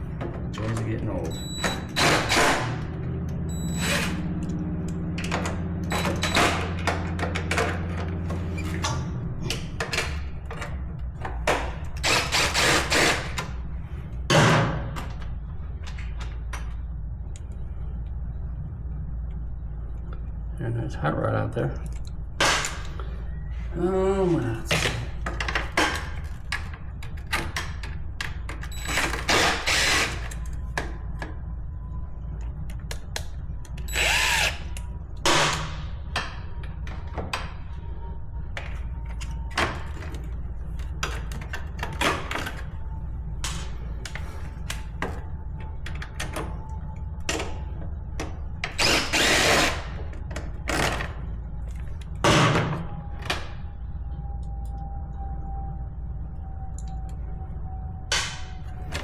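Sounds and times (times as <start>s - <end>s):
tools and metal parts clanking: 0.0s - 13.6s
handheld power tool whirring: 1.6s - 2.8s, 11.9s - 13.6s, 28.8s - 30.5s, 33.8s - 34.9s, 48.7s - 50.0s.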